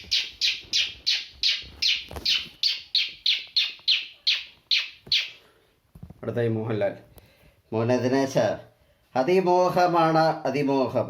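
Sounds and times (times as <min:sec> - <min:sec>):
person imitating bird chirps: 0:00.0 - 0:05.4.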